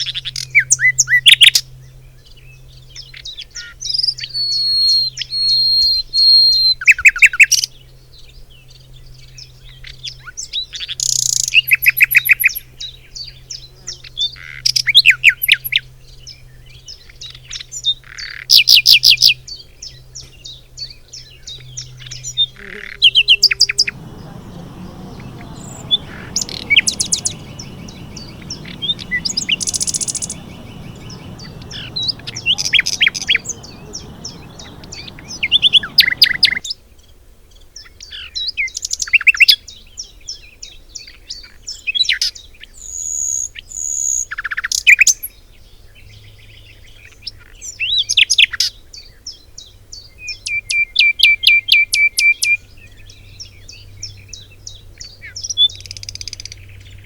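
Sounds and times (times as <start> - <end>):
songbirds singing and calling: 18.5 - 36.7
low steady rush: 23.0 - 36.6.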